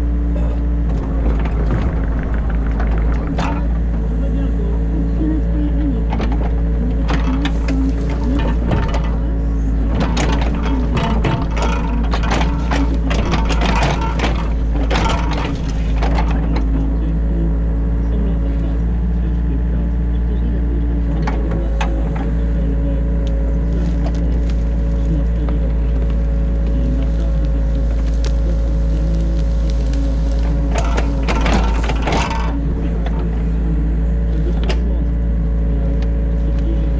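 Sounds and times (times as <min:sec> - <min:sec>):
excavator engine and hydraulics: 0:00.0 - 0:36.9
bucket clattering and scraping: 0:00.8 - 0:04.2, 0:06.1 - 0:17.0, 0:23.4 - 0:34.9
knocks: 0:00.9 - 0:04.1.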